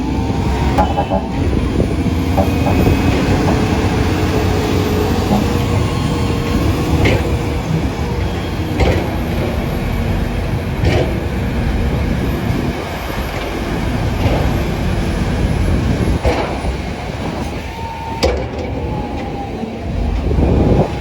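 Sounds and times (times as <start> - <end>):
heavy vehicle rumbling: 0.0 - 21.0
clanks or knocks: 0.7 - 7.6, 18.2 - 19.4.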